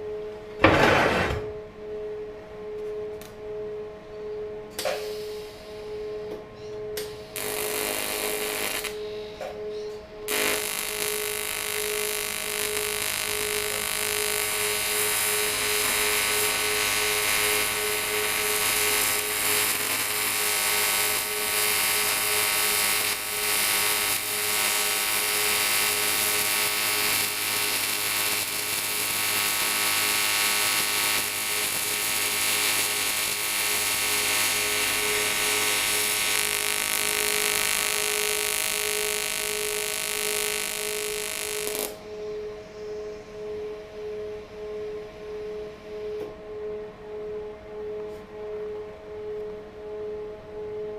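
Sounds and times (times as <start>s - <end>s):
welding arc buzzing: 7.0s - 9.0s, 10.3s - 42.0s.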